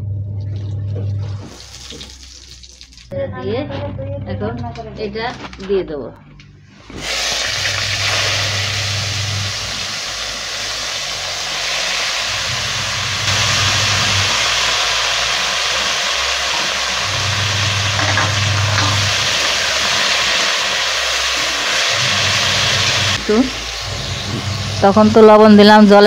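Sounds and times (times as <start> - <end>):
food frying in hot oil: 1.4 - 3.1, 6.9 - 26.0.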